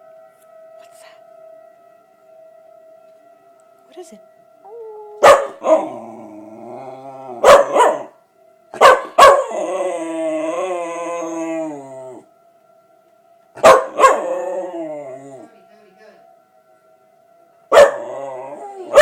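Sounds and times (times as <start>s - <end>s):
dog howling: 4.6s - 8.1s, 8.8s - 12.3s, 13.6s - 15.5s, 17.7s - 19.0s.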